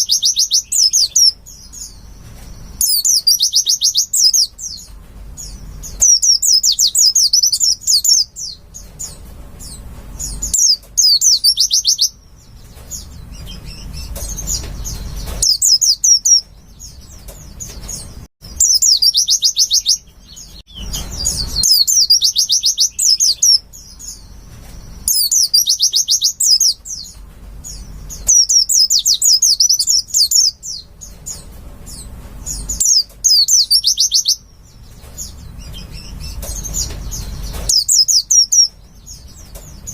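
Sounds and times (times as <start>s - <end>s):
bird song with high trills: 0.0s - 39.9s.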